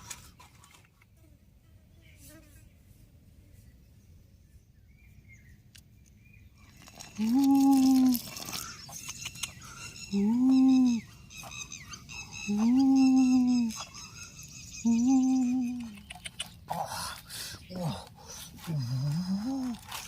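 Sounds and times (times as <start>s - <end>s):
person humming: 7.1s - 8.4s, 10.1s - 11.1s, 12.5s - 13.8s, 14.8s - 16.1s, 17.7s - 20.0s.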